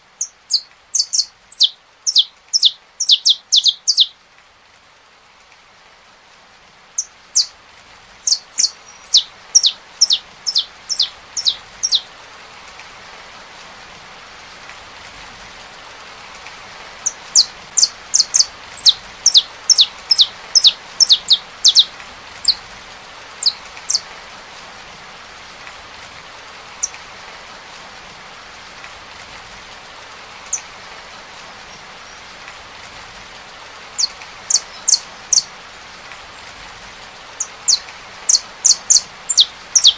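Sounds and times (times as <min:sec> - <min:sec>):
rain hiss: 0:00.0 - 0:39.9
finch singing: 0:00.2 - 0:04.2, 0:07.0 - 0:07.6, 0:08.2 - 0:12.1, 0:17.0 - 0:22.6, 0:23.4 - 0:24.1, 0:34.0 - 0:35.5, 0:37.4 - 0:39.9.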